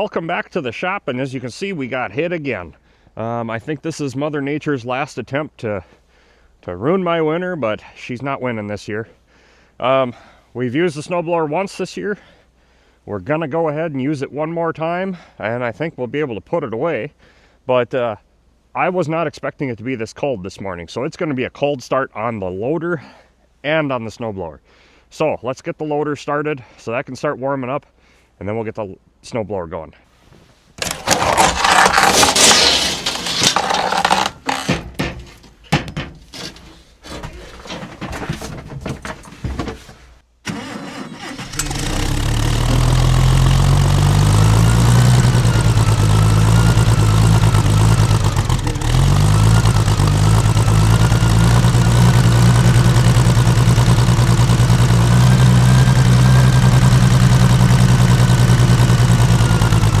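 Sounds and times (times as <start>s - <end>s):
rustling and knocking: 30.3s - 40.2s
loader engine starting and idling: 30.8s - 60.0s.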